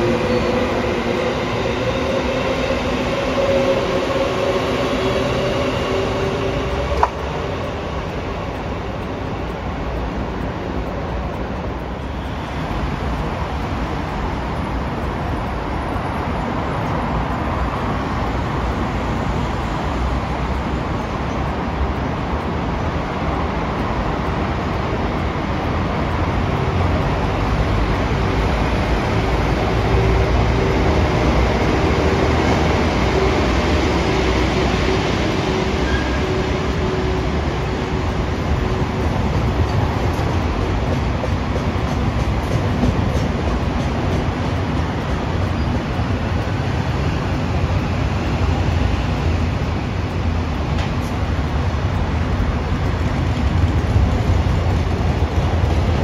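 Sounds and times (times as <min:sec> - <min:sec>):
train running past: 0:00.0 - 0:56.0.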